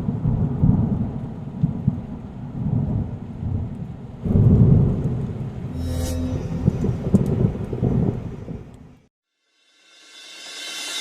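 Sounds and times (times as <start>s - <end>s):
low rough rumbling: 5.7s - 8.8s.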